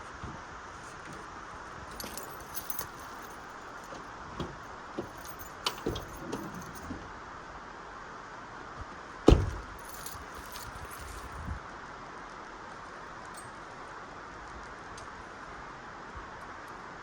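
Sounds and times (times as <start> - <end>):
light metallic clinks: 1.9 - 4.1, 5.0 - 6.9, 9.4 - 11.5, 13.2 - 13.8
soft knocks of gear: 1.9 - 7.0.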